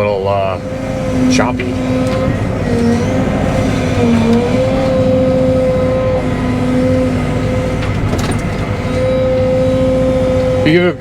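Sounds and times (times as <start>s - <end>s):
excavator engine and hydraulics: 0.0s - 11.0s.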